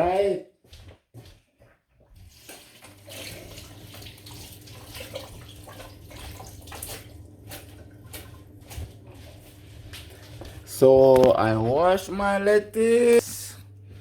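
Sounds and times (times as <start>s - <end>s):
water splashing over leaves: 2.6s - 9.2s.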